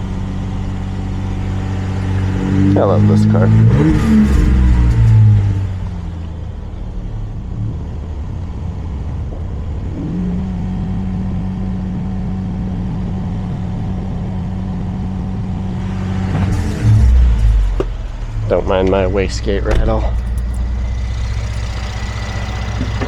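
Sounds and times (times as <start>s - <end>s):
car engine humming: 0.0s - 23.0s
steady whine: 0.0s - 23.0s.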